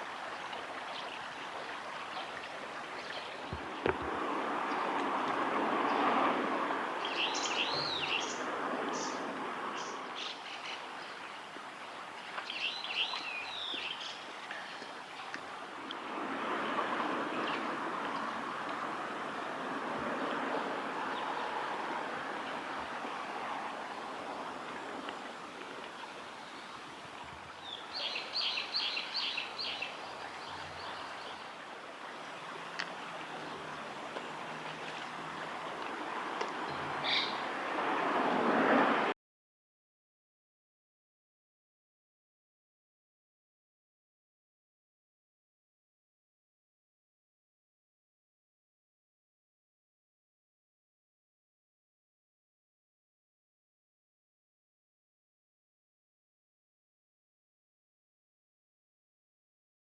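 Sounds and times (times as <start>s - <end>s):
river water flowing: 0.0s - 39.2s
kingfisher shrill calls: 37.0s - 37.5s.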